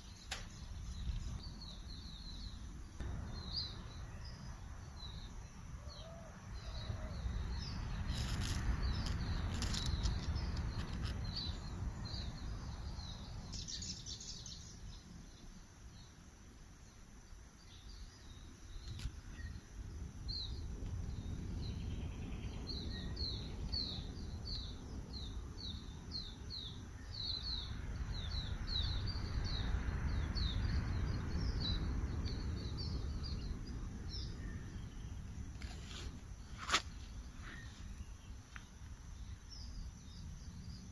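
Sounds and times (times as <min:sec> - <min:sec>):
low outdoor rumble: 0:00.0 - 0:15.4
small bird chirping: 0:00.0 - 0:16.1, 0:20.3 - 0:40.9.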